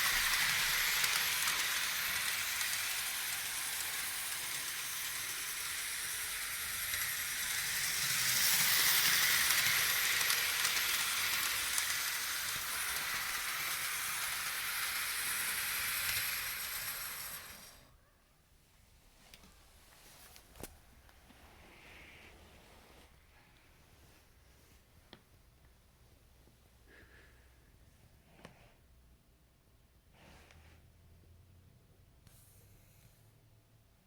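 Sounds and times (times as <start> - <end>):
model steam train running: 0.0 - 17.9.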